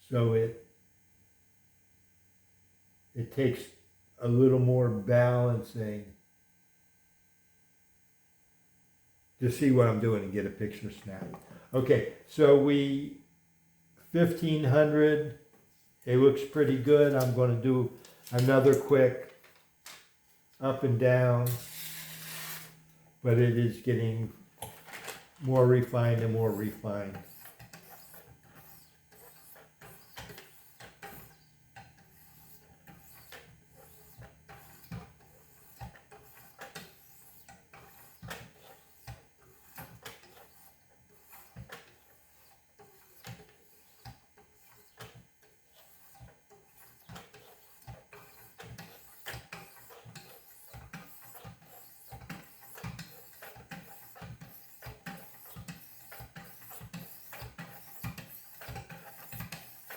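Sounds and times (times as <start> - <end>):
sharpening stones scraping knife edge: 21.6 - 22.8.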